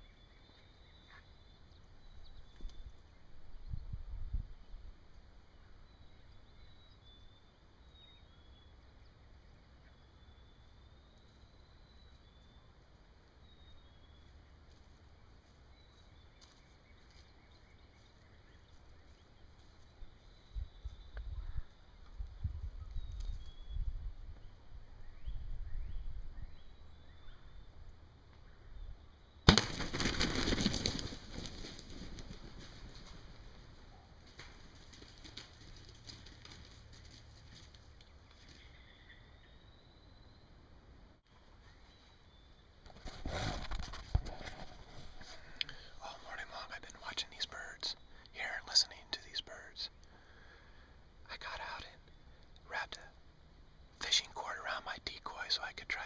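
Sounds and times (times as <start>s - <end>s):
distant songbirds chirping: 0.0s - 56.0s
heavy wing flapping: 29.5s - 33.3s.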